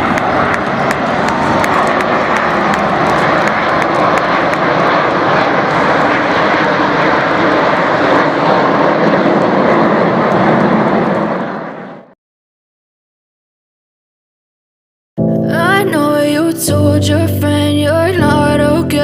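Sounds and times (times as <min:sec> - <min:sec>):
aircraft engines rushing: 0:00.0 - 0:12.2.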